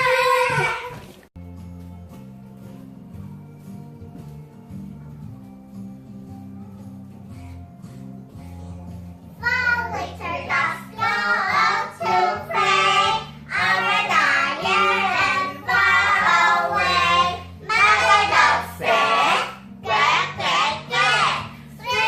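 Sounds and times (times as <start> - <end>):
child singing: 9.4 - 22.0.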